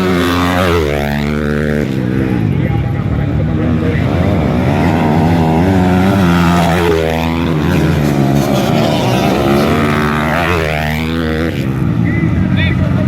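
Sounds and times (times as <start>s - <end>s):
motocross bikes revving: 0.0s - 13.0s.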